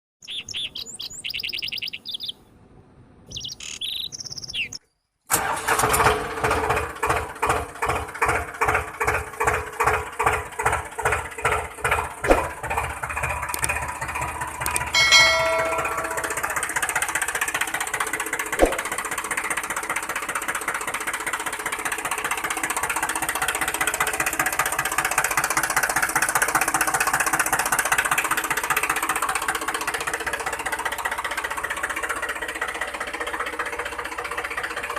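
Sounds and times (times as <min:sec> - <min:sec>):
birds chirping: 0:00.2 - 0:02.6, 0:03.2 - 0:05.1
small engine running: 0:05.3 - 0:34.9.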